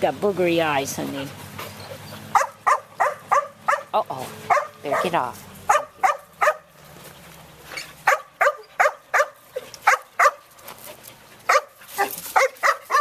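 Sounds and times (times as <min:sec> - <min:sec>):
dog barking: 0:02.3 - 0:06.7, 0:08.0 - 0:10.4, 0:11.5 - 0:13.0.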